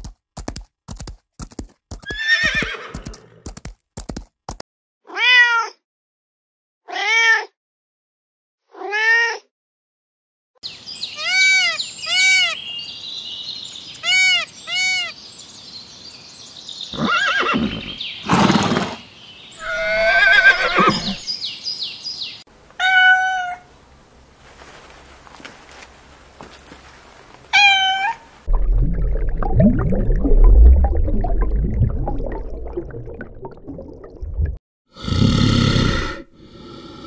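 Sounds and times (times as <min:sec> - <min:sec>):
outdoor background sound: 0:00.0 - 0:04.6, 0:10.6 - 0:37.0
kitten meows: 0:05.1 - 0:05.8, 0:08.7 - 0:09.4, 0:22.8 - 0:23.6, 0:27.6 - 0:28.2
harsh animal cries: 0:11.2 - 0:12.6, 0:14.0 - 0:15.1, 0:19.6 - 0:21.2.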